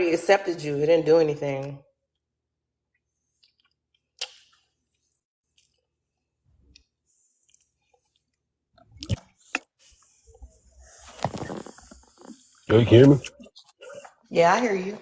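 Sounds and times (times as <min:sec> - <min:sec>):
wet mouth clicks: 0:03.4 - 0:04.6, 0:08.9 - 0:09.7
person chewing: 0:05.5 - 0:05.9, 0:06.7 - 0:09.8, 0:11.0 - 0:14.1.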